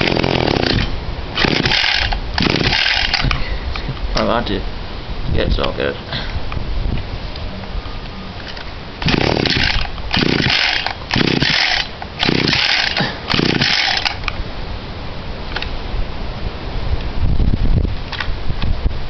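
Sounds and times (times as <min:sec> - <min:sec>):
recoil starter cord whirring: 0:00.0 - 0:03.4, 0:09.0 - 0:14.3.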